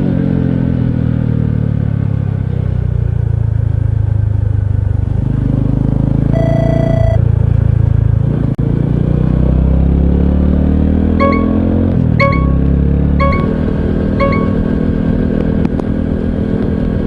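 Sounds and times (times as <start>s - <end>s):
beep: 6.4s - 7.2s, 11.2s - 14.8s
short held tone: 6.4s - 7.2s, 11.2s - 14.8s.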